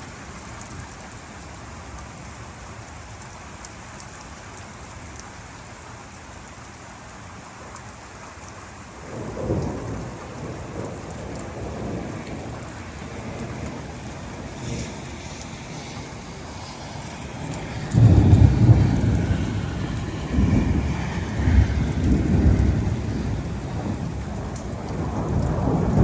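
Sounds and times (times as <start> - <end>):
rain falling: 0.0 - 26.0
thunder rumbling: 9.0 - 26.0.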